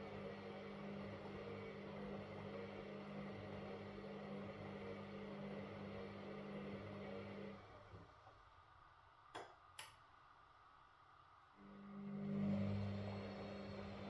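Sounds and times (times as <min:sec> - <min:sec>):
washing machine running: 0:00.0 - 0:08.0, 0:11.6 - 0:14.0.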